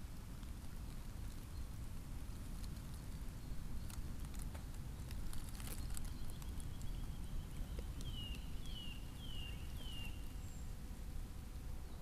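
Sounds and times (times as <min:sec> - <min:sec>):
songbird whistling: 0:05.7 - 0:10.7.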